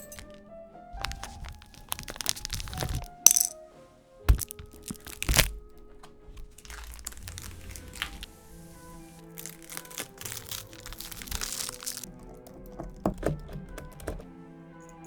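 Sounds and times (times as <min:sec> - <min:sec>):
soft rustling: 0:00.0 - 0:03.6, 0:04.2 - 0:12.8
background music: 0:00.0 - 0:15.0
hard keyboard parts clicking: 0:09.4 - 0:14.3.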